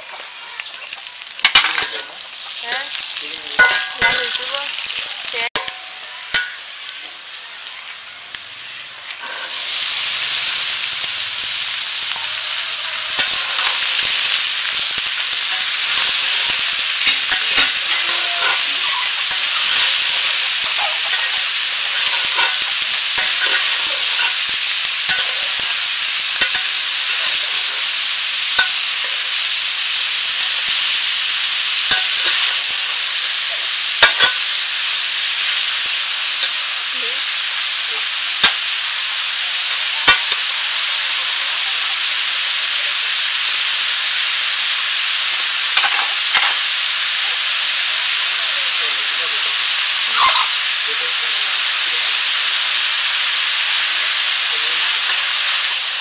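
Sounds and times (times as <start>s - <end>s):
onion sizzling in oil: 0.0s - 56.0s
metal spatula scraping pan: 1.4s - 2.9s, 3.5s - 4.6s, 9.2s - 9.7s, 15.2s - 24.5s.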